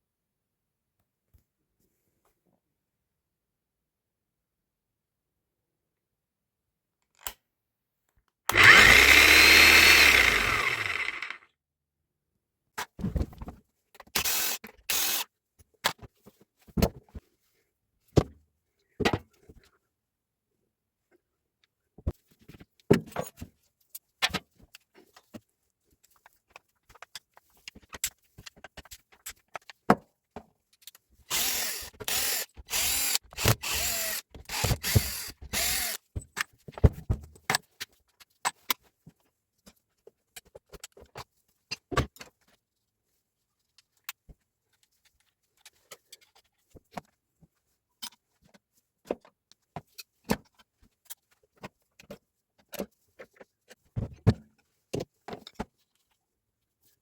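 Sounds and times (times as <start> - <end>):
power tool bursts: 8.5 - 11.4, 14.2 - 15.2, 31.3 - 36.0
tool parts clicking and knocking: 8.5 - 11.4, 30.8 - 36.5.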